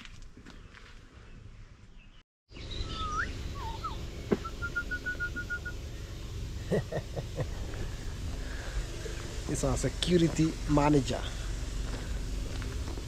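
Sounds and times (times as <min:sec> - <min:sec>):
birds calling: 0:00.5 - 0:13.0
steady low rumble: 0:03.3 - 0:13.0.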